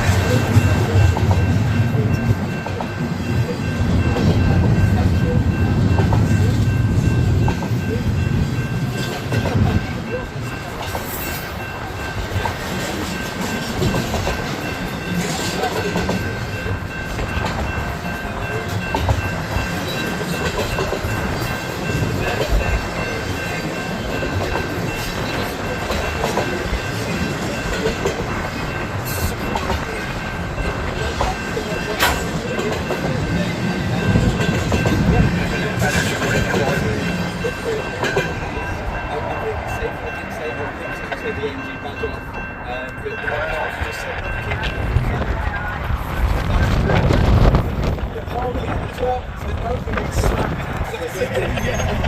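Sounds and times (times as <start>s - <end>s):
freight train rumbling past: 0.0s - 52.0s
wind rumbling on microphone: 44.1s - 52.0s.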